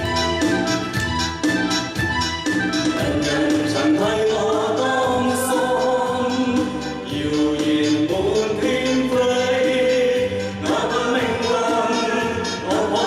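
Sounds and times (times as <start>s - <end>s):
instrumental accompaniment: 0.0s - 13.0s
group of people singing: 3.0s - 13.0s.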